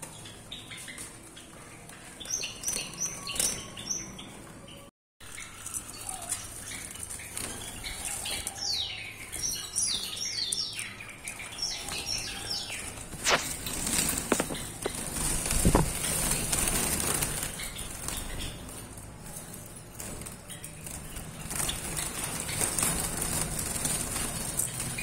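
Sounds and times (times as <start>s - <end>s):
wing flutters: 12.8s - 19.1s, 19.9s - 25.0s.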